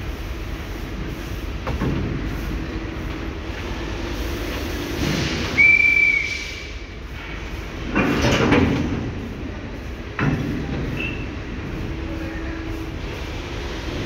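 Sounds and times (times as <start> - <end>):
railway carriages rumbling: 0.0 - 14.0
high whistle-like squeal: 5.5 - 6.8.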